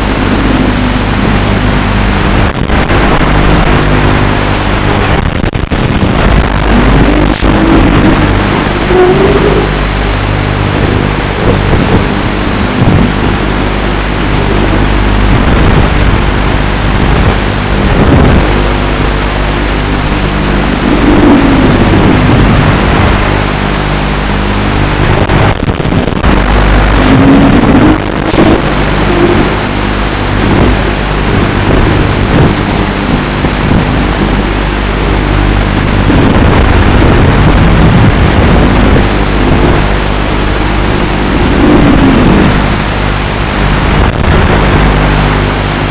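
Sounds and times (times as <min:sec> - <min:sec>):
rushing noise: 0:00.0 - 0:45.9
quadcopter motors buzzing: 0:06.2 - 0:19.3.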